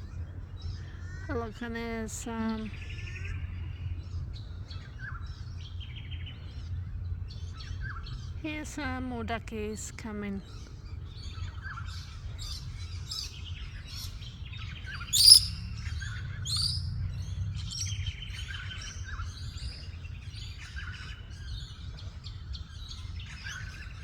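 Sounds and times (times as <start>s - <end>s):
steady low rumble: 0.0s - 24.0s
birds chirping: 10.2s - 24.0s
sharp falling bird call: 15.1s - 15.6s.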